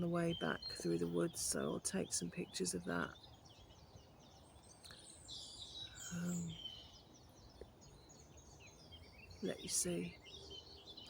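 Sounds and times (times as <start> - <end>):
songbirds singing and chirping: 0.0 - 11.0.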